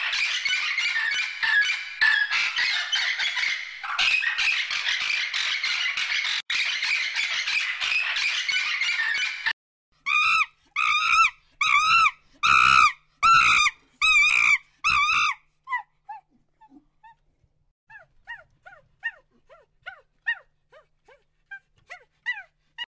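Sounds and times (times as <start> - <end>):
cockatoo screeching: 10.0 - 15.8.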